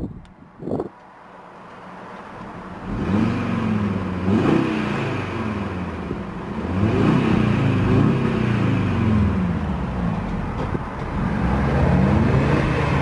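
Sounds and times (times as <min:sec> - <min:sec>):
car engine revving: 0:02.3 - 0:13.0.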